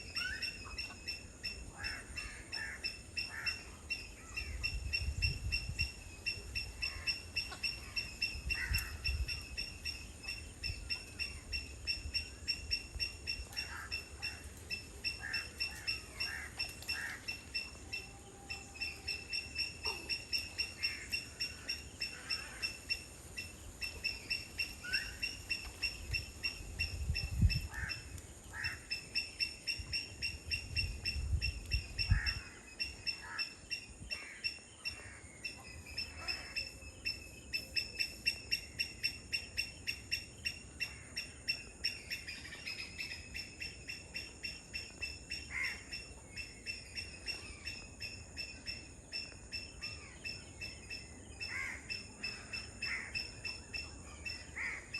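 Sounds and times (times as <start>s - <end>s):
wind buffeting microphone: 4.2s - 7.0s, 25.8s - 28.7s, 29.6s - 32.7s.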